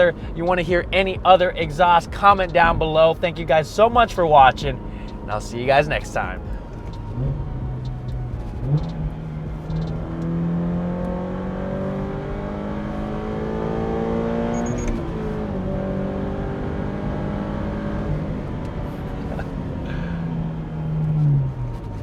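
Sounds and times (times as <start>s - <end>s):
car engine revving through gears: 6.0s - 22.0s.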